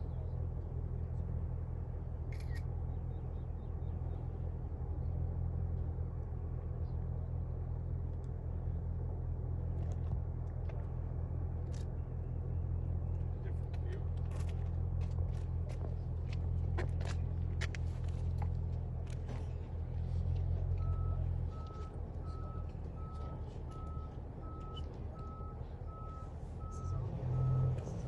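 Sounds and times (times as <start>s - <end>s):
bus engine running: 0.0s - 28.0s
reversing alarm beeping: 20.8s - 27.8s.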